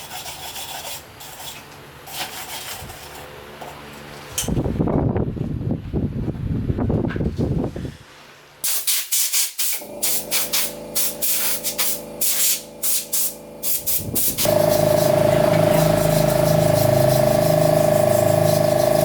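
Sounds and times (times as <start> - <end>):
short hissing bursts: 8.6 - 19.0
loud machine hum: 9.8 - 19.0
steady motor hum: 9.8 - 19.0
abrasive rubbing on metal: 10.4 - 19.0.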